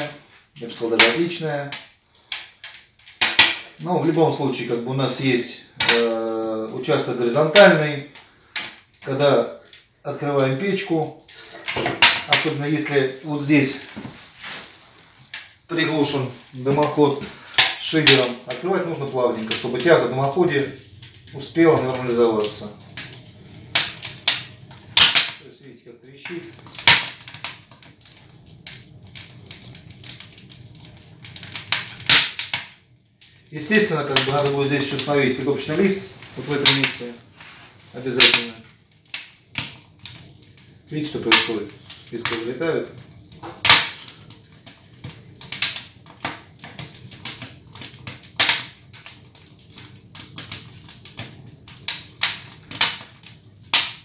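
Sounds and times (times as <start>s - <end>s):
firewood crackling and popping: 0.0s - 54.0s.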